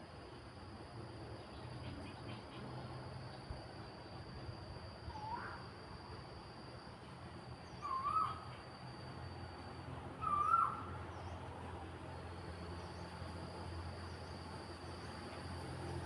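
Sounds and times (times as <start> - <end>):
animal wavering calls: 10.2 - 10.9.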